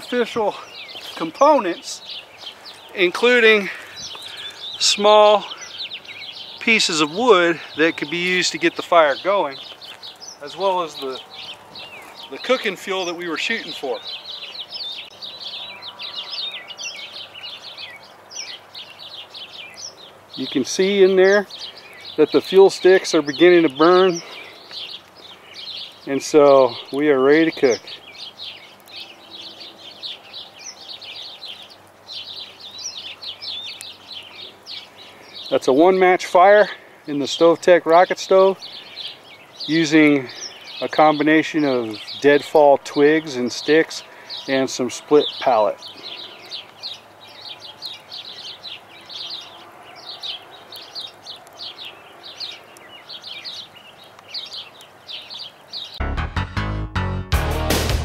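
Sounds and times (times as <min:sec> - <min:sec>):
birds chirping and twittering: 0:00.0 - 0:56.0
rock music with electric guitar: 0:56.0 - 0:58.0.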